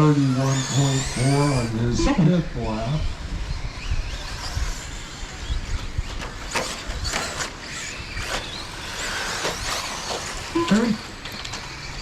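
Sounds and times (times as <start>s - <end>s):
rc truck motors whining: 0.0s - 12.0s.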